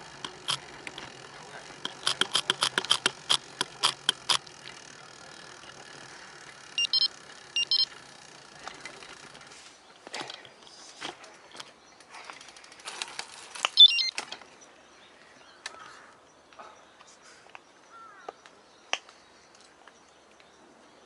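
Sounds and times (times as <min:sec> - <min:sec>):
bicycle clicks and rattles: 0:00.0 - 0:14.6.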